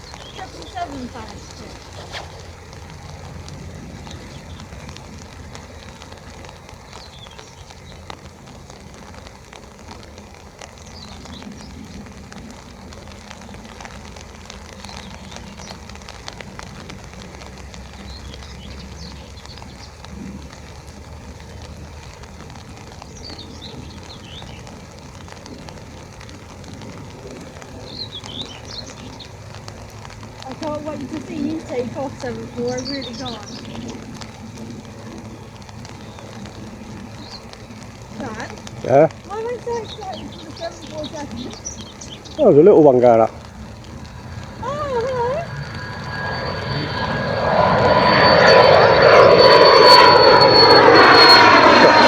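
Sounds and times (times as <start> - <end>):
bird chirps: 0.0 - 2.6, 27.8 - 29.3, 30.6 - 34.1, 39.3 - 42.6, 43.2 - 52.0
low steady rumble: 0.0 - 52.0
rain pattering on an umbrella: 0.0 - 52.0.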